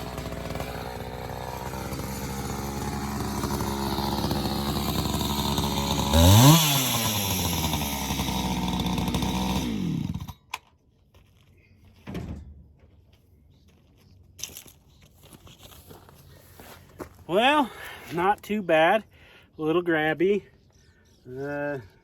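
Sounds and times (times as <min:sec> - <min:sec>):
chainsaw idling and revving: 0:00.0 - 0:10.5.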